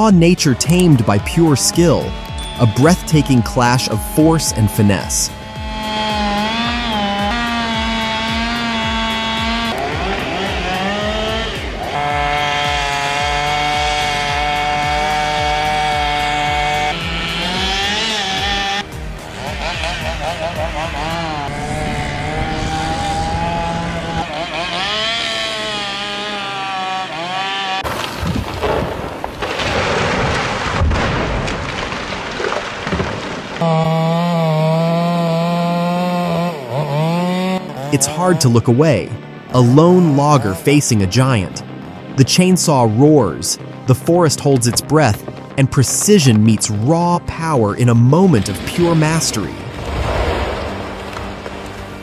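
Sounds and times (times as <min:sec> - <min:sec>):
background music with steady beat: 0:00.0 - 0:21.5
engine running at high revs: 0:00.0 - 0:28.2, 0:33.4 - 0:52.0
rumbling crashing noise: 0:27.8 - 0:33.6, 0:48.5 - 0:52.0.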